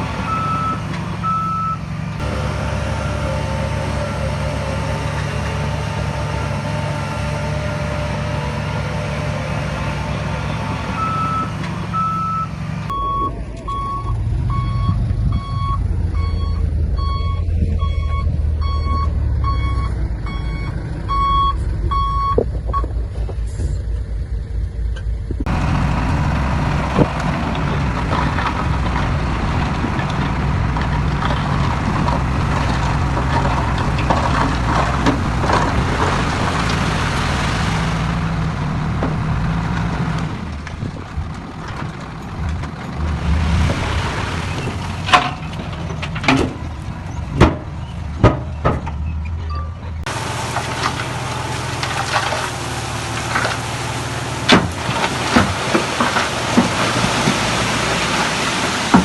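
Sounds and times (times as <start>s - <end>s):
diesel engine running low: 0.0s - 59.0s
heavy diesel machine working: 0.0s - 59.0s
reversing alarm beeps: 11.0s - 22.9s.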